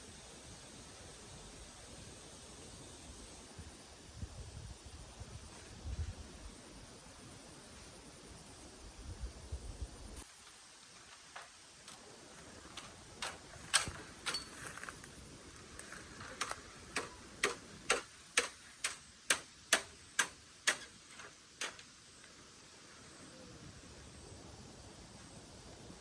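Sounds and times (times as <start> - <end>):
sharp clicks: 11.9 - 21.8.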